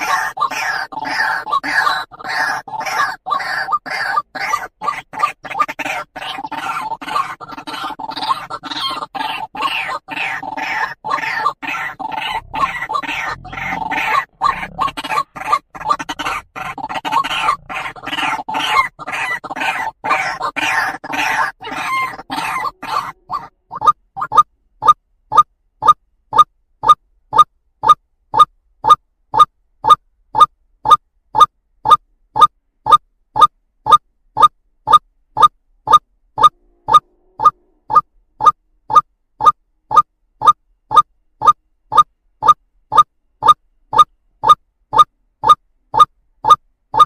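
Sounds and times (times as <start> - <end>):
waterhen calling: 0.0 - 25.5, 35.4 - 38.6.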